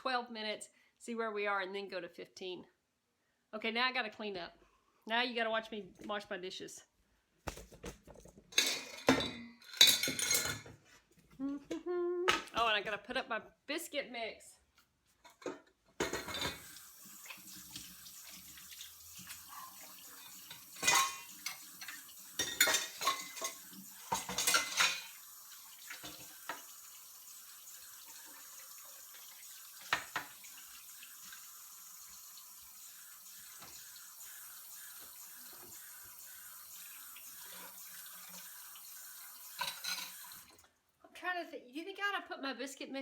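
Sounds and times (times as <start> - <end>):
bowls and utensils clattering: 7.9 - 10.8, 15.2 - 16.8, 17.4 - 25.2, 39.5 - 40.4
tap running into sink: 29.8 - 30.6.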